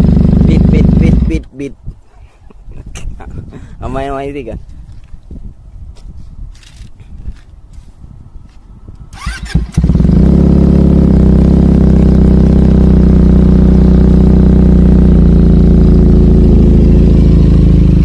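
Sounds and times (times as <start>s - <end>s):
motorcycle engine idling: 0.0s - 1.4s, 9.2s - 18.0s
starter motor whine: 9.1s - 10.2s.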